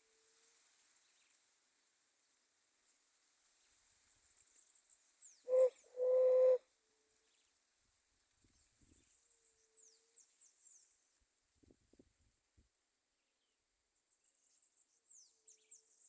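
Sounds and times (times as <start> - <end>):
dove cooing: 5.5 - 6.6
high thin bird chirps: 5.5 - 6.6.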